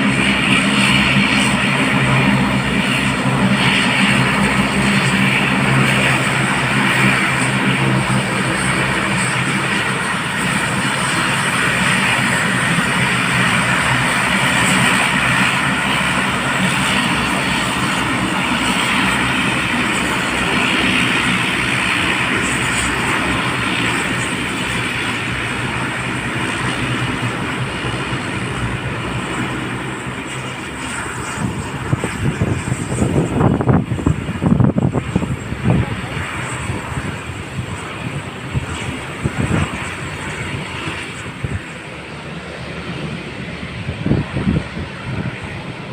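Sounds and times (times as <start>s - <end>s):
airplane engines running: 0.0s - 45.9s.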